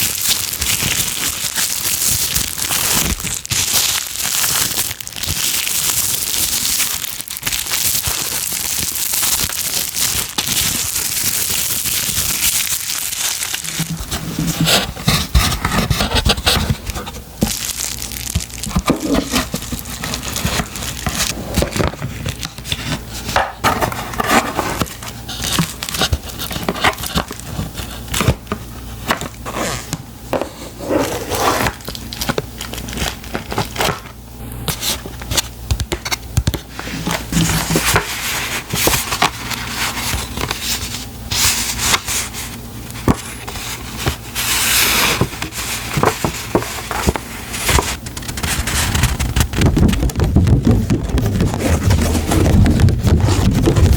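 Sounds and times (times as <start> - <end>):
packaging crinkling: 0.0 - 53.9.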